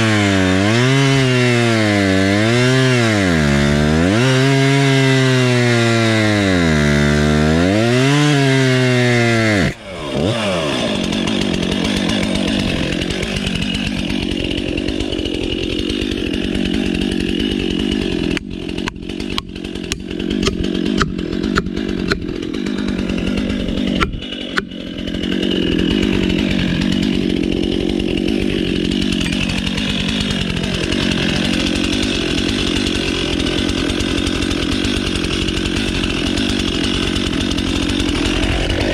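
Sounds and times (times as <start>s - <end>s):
chainsaw engine: 0.0s - 38.9s
sharp clicks and knocks: 18.3s - 22.5s, 23.9s - 24.8s.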